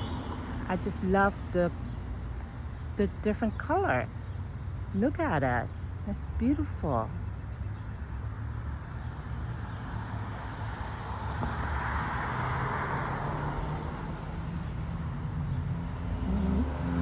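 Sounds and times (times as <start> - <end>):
steady low traffic rumble: 0.0 - 17.0
car passing by: 9.8 - 14.5.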